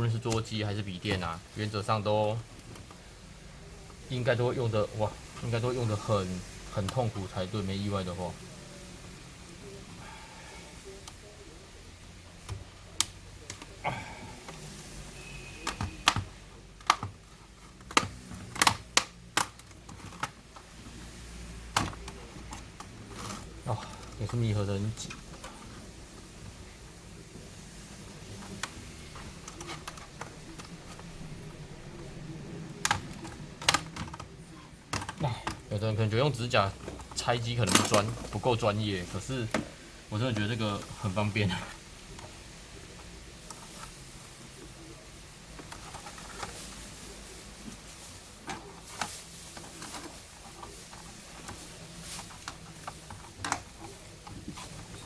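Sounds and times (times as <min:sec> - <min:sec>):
plastic clips clicking and scraping: 0:00.0 - 0:03.0, 0:12.4 - 0:26.7, 0:27.8 - 0:44.3, 0:45.5 - 0:47.0, 0:47.6 - 0:55.0
plastic case clicks: 0:15.6 - 0:17.2, 0:17.8 - 0:20.4, 0:28.4 - 0:34.3, 0:36.8 - 0:38.4.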